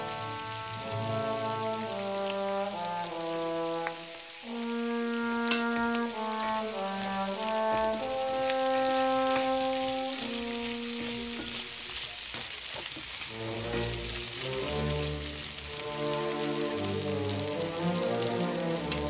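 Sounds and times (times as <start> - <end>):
background music of held notes: 0.0 - 12.1, 13.3 - 19.0
vegetables sizzling in skillet: 0.0 - 19.0
wooden spoon stirring: 5.5 - 14.2.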